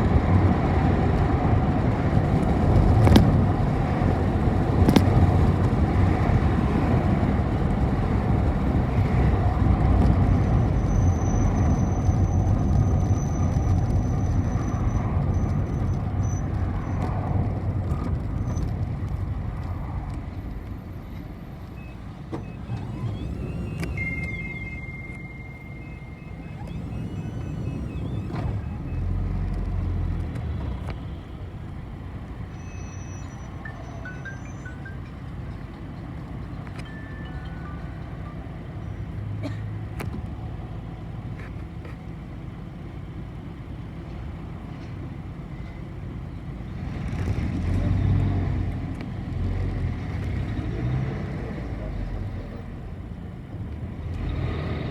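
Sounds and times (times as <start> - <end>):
bus engine and road rumble: 0.0 - 54.9
high electronic beep: 21.8 - 29.3, 32.5 - 35.7, 36.8 - 39.1.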